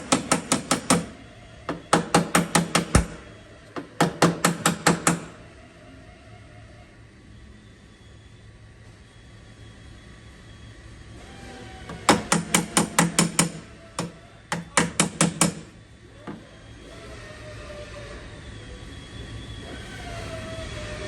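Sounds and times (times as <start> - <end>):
hammer striking steel panel: 2.0 - 3.2, 12.0 - 15.7.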